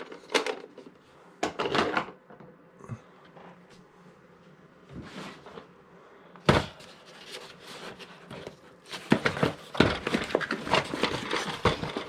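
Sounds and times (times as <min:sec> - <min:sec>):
clicks and packaging rustles: 0:06.5 - 0:12.0.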